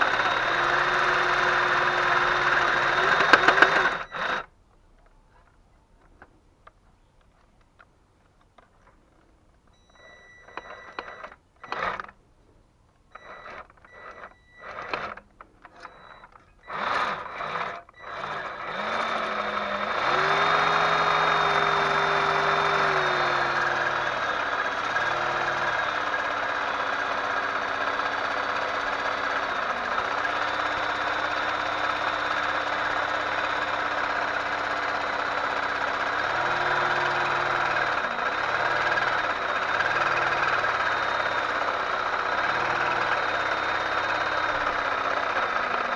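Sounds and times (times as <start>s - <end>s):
power tool running: 0.0s - 4.5s, 10.5s - 12.2s, 13.2s - 45.9s
short tones: 9.7s - 12.2s, 13.1s - 45.9s.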